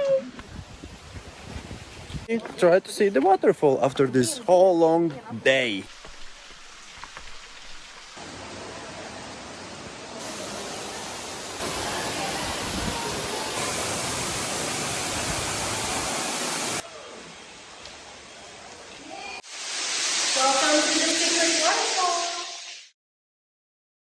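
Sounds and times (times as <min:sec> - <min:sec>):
waterfall rushing: 0:05.7 - 0:17.8.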